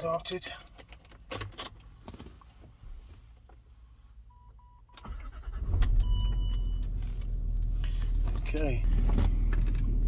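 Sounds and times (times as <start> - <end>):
car engine cranking and idling: 4.4 - 10.0
short electronic beeps: 6.0 - 6.9.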